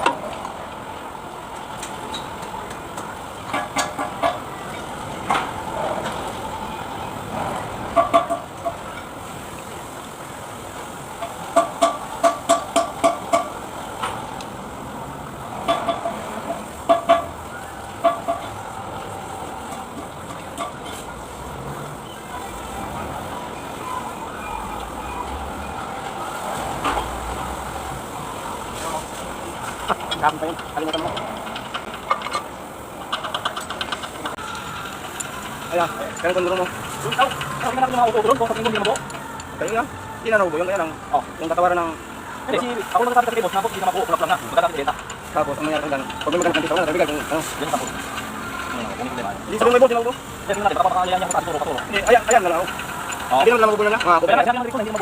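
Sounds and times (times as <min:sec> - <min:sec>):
ringing metallic taps: 0:11.2 - 0:13.6.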